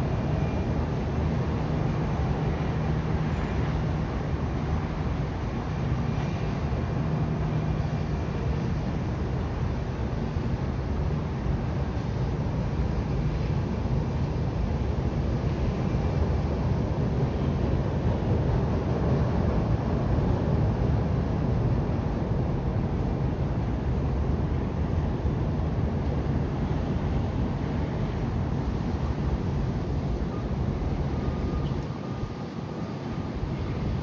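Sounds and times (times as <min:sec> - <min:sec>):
wind buffeting microphone: 0:21.8 - 0:34.0.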